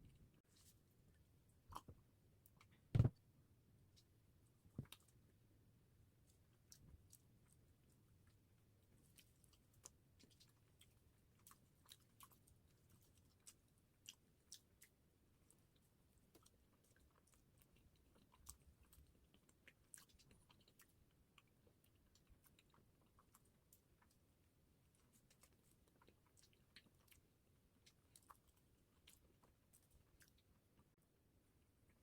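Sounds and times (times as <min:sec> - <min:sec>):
person chewing pastry: 0:01.7 - 0:02.7, 0:06.2 - 0:30.9.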